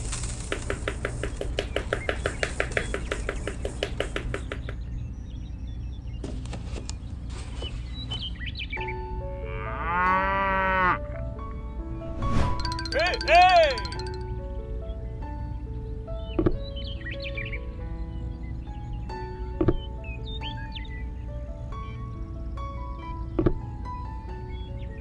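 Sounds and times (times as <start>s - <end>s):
fast run of clicks: 0.0s - 4.8s, 12.6s - 14.2s
cow mooing: 9.4s - 11.0s.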